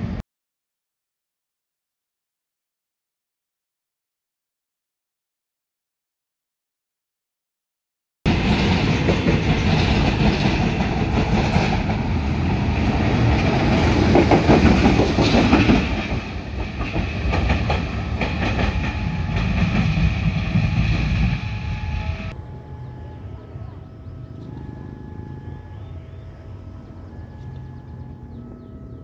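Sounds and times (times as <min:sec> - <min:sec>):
train wheels clattering over rails: 0:08.3 - 0:21.5.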